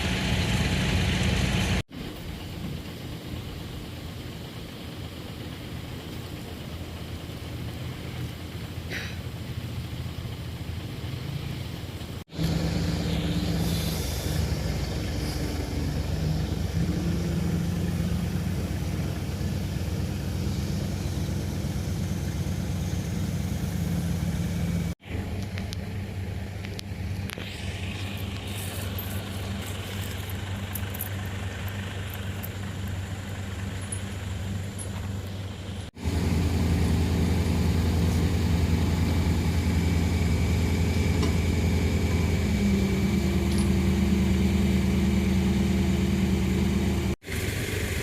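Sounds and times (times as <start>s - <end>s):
heavy machinery engine humming: 0.0s - 48.0s.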